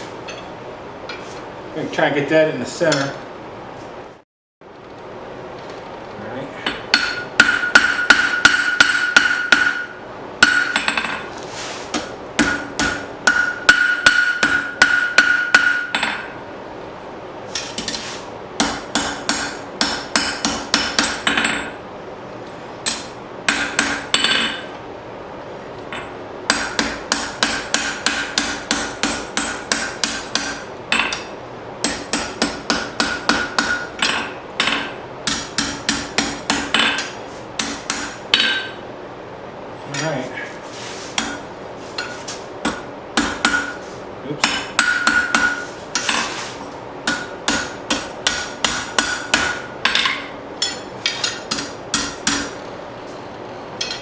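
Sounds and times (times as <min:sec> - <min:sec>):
hammer striking steel on anvil: 0:06.6 - 0:11.2, 0:11.9 - 0:16.4, 0:18.6 - 0:21.8, 0:22.8 - 0:24.6, 0:25.9 - 0:38.8, 0:41.2 - 0:41.4, 0:42.0 - 0:43.8, 0:44.4 - 0:46.3, 0:47.0 - 0:52.6, 0:53.8 - 0:54.0
anvil ringing: 0:47.1 - 0:52.6.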